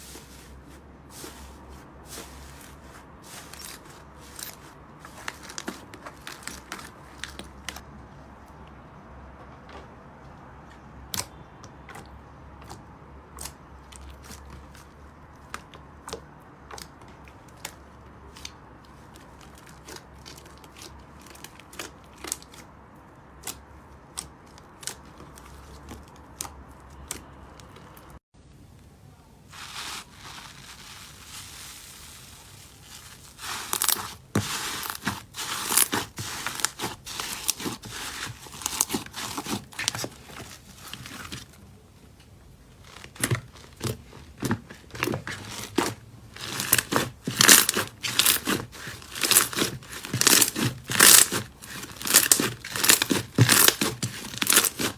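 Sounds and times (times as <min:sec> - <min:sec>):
slime crackling and crunching: 0:00.0 - 0:07.8, 0:13.4 - 0:22.8, 0:29.5 - 0:41.6, 0:42.8 - 0:54.9.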